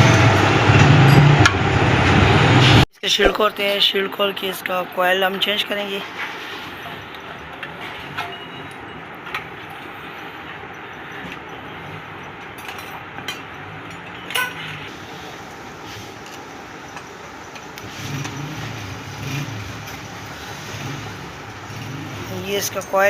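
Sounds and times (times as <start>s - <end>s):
motor vehicle engine droning: 0.0s - 2.9s, 6.0s - 23.0s
workshop background noise: 0.0s - 23.0s.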